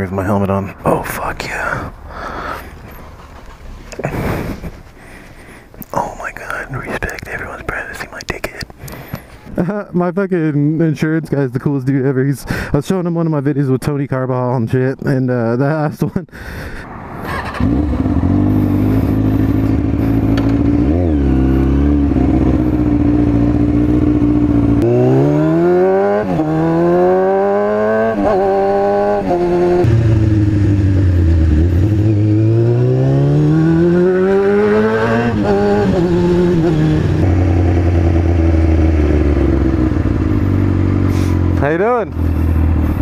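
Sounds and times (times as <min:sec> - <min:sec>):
motorcycle accelerating through gears: 0:17.2 - 0:43.0
motorcycle engine idling and revving: 0:17.2 - 0:43.0.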